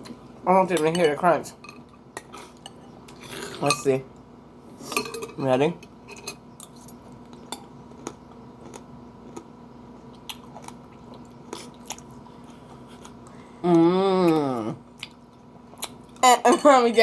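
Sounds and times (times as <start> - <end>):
chewing fruit and seeds: 6.5 - 16.4.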